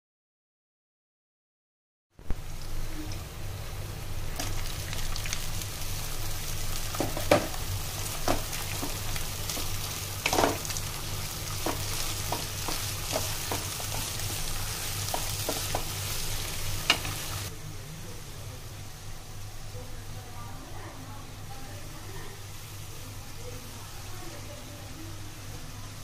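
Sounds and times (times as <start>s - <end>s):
vegetables sizzling in hot oil: 2.2s - 26.0s
spatula scraping and clicking on pan: 8.2s - 10.7s, 11.5s - 16.0s.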